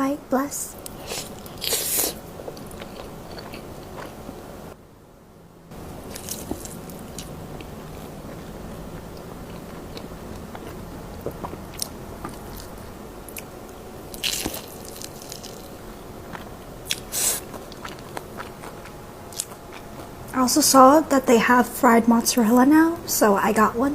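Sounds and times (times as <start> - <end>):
chewing with wet squishing: 0.8 - 4.4, 6.1 - 13.5, 16.3 - 20.4
crunchy bites: 6.0 - 13.5, 14.1 - 19.8.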